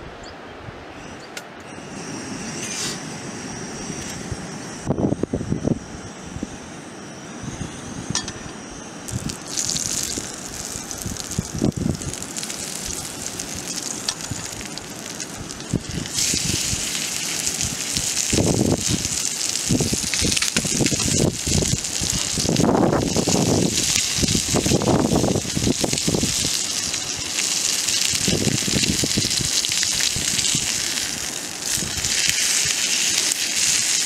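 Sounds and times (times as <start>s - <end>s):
garlic sizzling in hot oil: 9.1s - 34.0s.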